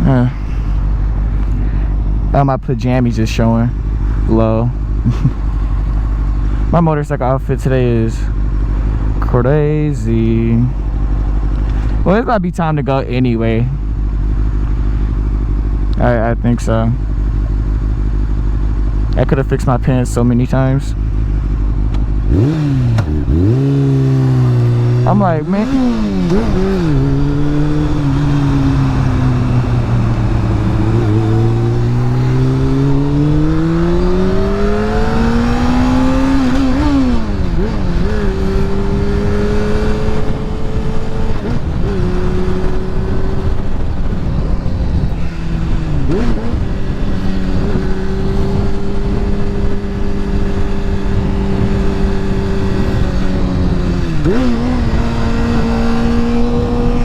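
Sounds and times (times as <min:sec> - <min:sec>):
motorcycle engine accelerating: 0:00.0 - 0:57.0
wind rumble on microphone: 0:25.8 - 0:57.0.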